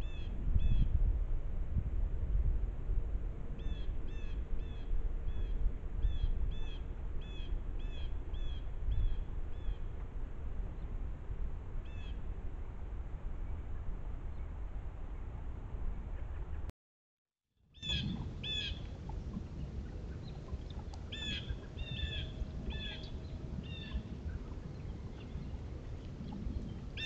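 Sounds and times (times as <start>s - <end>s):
steady low rumble: 0.0s - 16.7s, 17.8s - 27.0s
bird harsh high calls: 21.1s - 23.1s.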